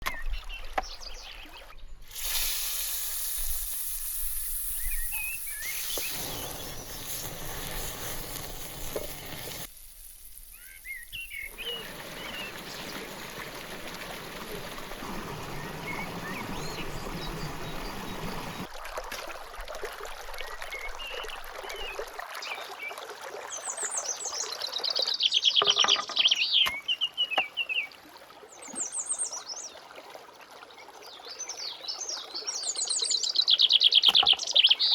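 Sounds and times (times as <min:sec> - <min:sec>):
running water: 0:00.0 - 0:32.9
rapid falling bird chirps: 0:04.6 - 0:08.1, 0:10.4 - 0:13.2, 0:15.4 - 0:18.7
birds chirping: 0:04.7 - 0:09.6, 0:10.5 - 0:13.7, 0:14.3 - 0:18.7, 0:23.7 - 0:27.9, 0:32.6 - 0:34.9.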